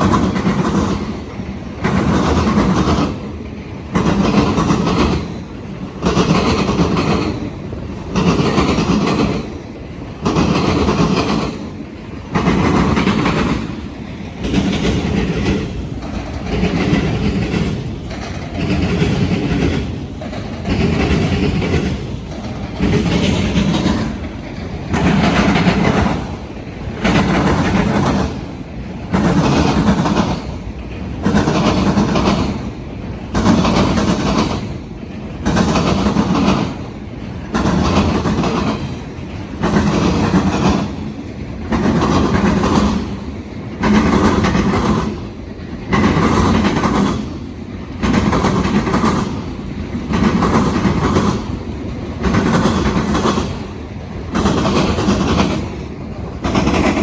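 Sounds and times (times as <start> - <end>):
train wheels pounding rail crossings: 0.0 - 57.0.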